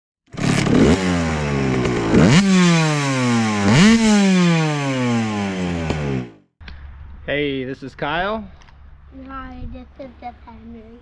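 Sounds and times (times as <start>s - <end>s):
dirt bike engine revving: 0.3s - 6.5s.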